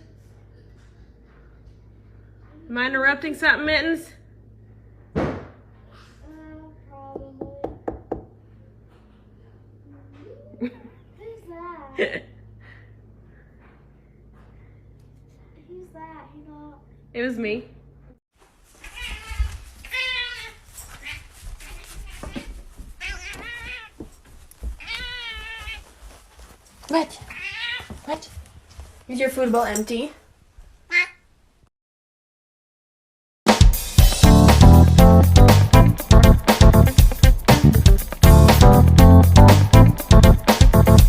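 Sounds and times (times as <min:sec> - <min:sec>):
sharp knocks: 0:05.1 - 0:05.6
thump: 0:05.1 - 0:05.6
cat meowing: 0:18.8 - 0:24.0, 0:24.8 - 0:25.8, 0:27.3 - 0:28.0, 0:30.9 - 0:31.2.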